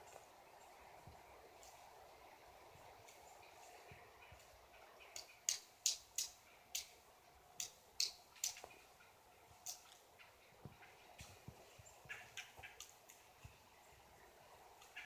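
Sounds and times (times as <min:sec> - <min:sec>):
faint background hiss: 0:00.0 - 0:15.0
woodpecker pecking at wood: 0:05.1 - 0:06.9, 0:07.6 - 0:08.8.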